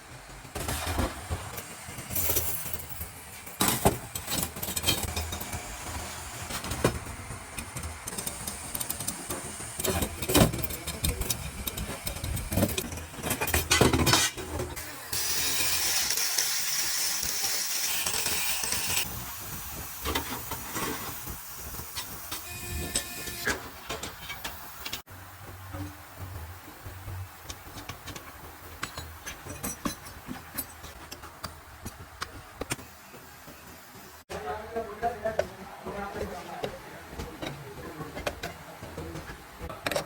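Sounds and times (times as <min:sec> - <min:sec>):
metallic clanks from tools: 0:02.1 - 0:05.6, 0:07.6 - 0:14.7, 0:27.4 - 0:31.6.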